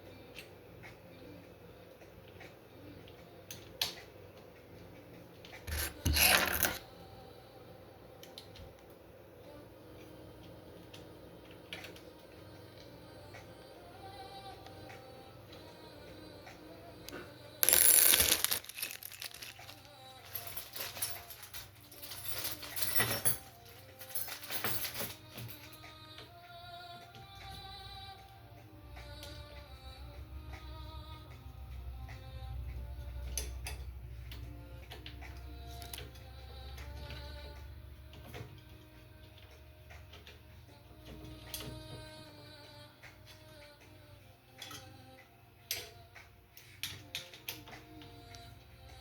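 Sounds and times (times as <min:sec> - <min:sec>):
scraping rub: 0:05.7 - 0:06.8
plastic packaging crinkling: 0:17.6 - 0:21.4.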